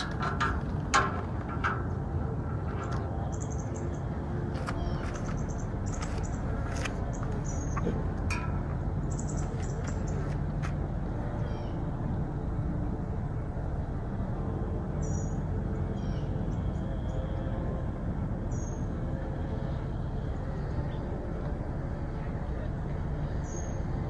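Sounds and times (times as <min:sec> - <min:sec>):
low outdoor rumble: 0:00.0 - 0:24.0
small birds chirping: 0:03.2 - 0:08.0, 0:09.1 - 0:10.4.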